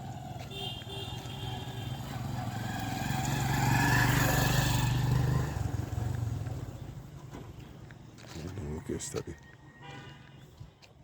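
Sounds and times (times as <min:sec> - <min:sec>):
vehicle engine passing by: 0:01.2 - 0:07.1.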